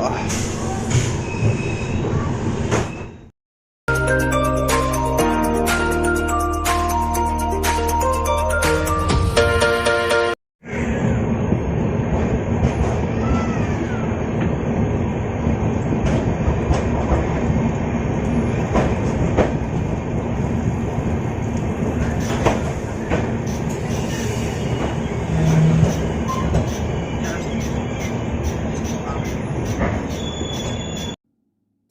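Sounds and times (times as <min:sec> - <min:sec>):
train wheels rumbling on track: 0:10.7 - 0:31.2
track clacks and knocks: 0:15.8 - 0:20.0, 0:21.4 - 0:30.8.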